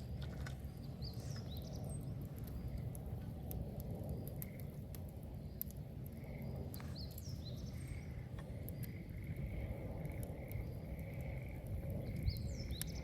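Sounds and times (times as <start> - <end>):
fire crackling and popping: 0.0 - 13.0
low rumble of flames: 0.0 - 13.0.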